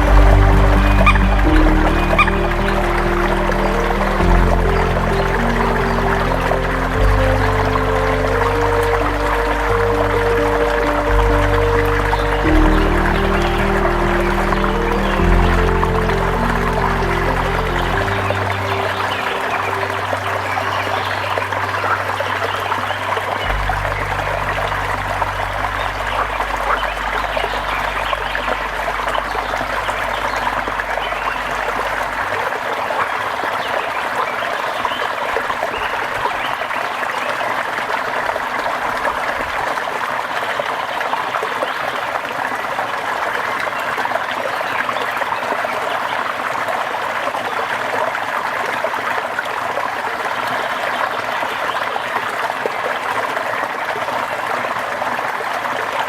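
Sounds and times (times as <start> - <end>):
low steady hum: 0.0 - 32.6
steady rainfall: 0.0 - 56.0.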